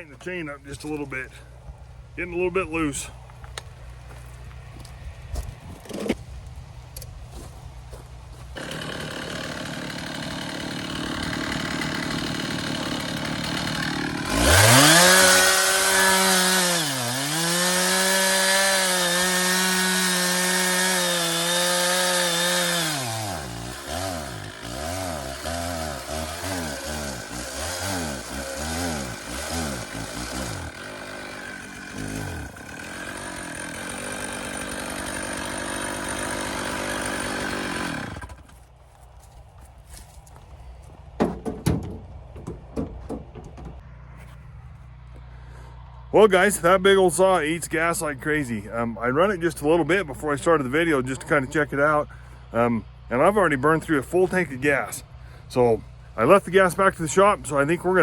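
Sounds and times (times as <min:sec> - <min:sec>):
chainsaw idling and revving: 0:08.6 - 0:38.6, 0:45.1 - 0:58.0.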